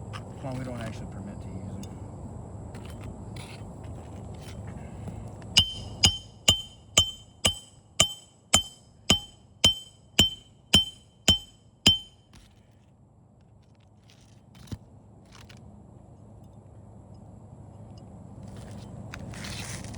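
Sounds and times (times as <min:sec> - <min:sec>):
hammer striking nails: 0:05.6 - 0:12.5.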